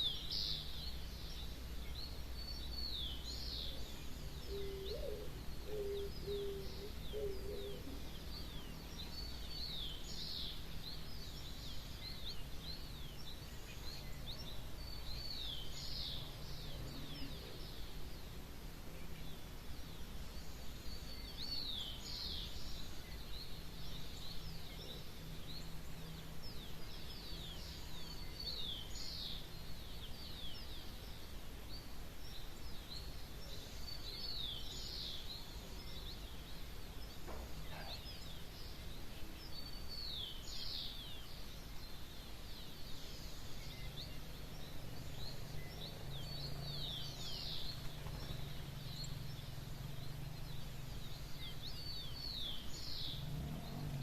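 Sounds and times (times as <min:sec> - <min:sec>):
faint bird chirps: 0:00.0 - 0:54.0.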